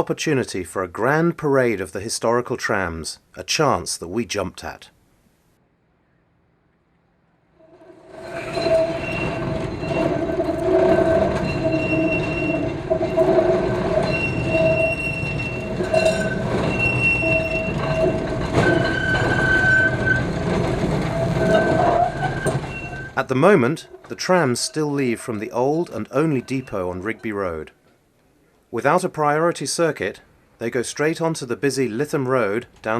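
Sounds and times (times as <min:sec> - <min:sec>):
tram wheels squealing: 0:07.6 - 0:27.7
tram running gear rumble: 0:07.6 - 0:28.4.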